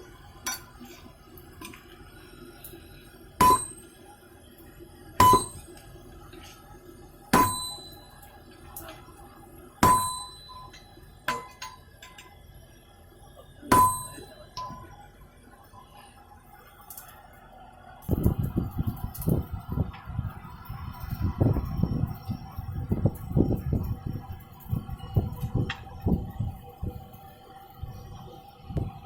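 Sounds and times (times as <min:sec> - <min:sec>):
hammer striking steel on anvil: 0:03.4 - 0:03.9, 0:05.2 - 0:05.8, 0:07.4 - 0:08.1, 0:09.8 - 0:12.2, 0:13.7 - 0:14.8.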